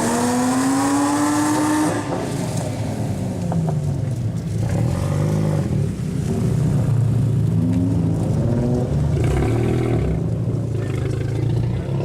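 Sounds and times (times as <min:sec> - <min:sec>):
car engine revving hard: 0:00.0 - 0:02.2.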